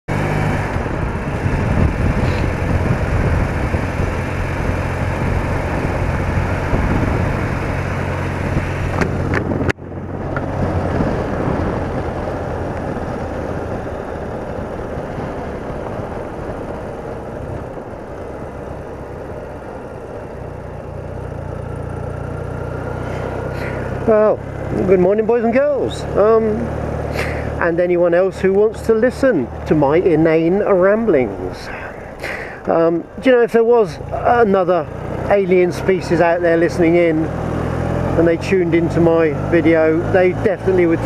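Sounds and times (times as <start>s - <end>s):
rushing wind noise: 0.1s - 20.7s
motorcycle engine running: 0.1s - 41.0s.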